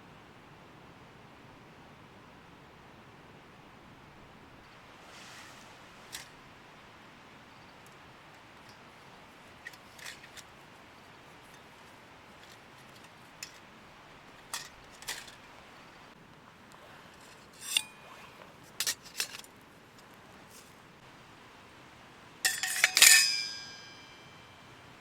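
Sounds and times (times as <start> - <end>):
metal cookware clinking: 12.4 - 13.6, 14.4 - 15.4, 17.5 - 18.0, 22.4 - 24.6
short metallic ring: 17.6 - 18.0, 22.4 - 24.7.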